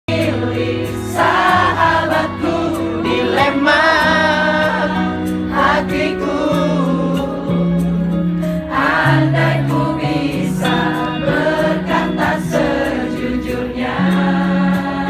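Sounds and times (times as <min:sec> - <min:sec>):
person singing: 0:02.3 - 0:05.0.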